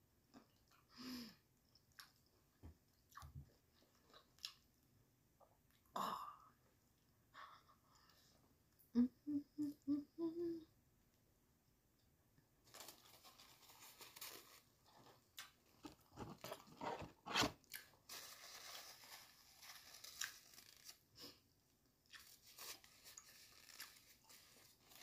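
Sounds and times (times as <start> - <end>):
chewing crispy fried chicken: 1.7 - 4.8.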